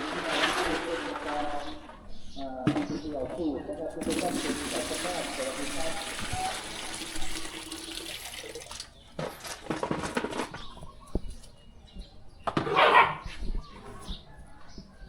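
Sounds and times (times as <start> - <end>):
short bursts of water noise: 4.0 - 9.1
water running: 4.0 - 9.2.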